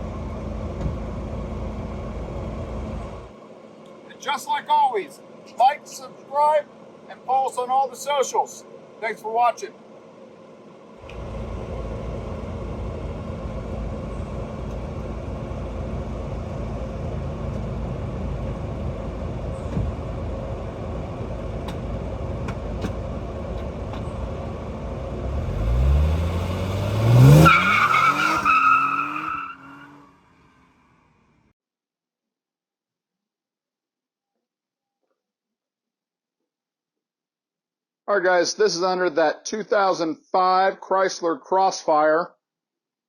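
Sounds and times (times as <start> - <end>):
car engine revving: 9.8 - 31.2.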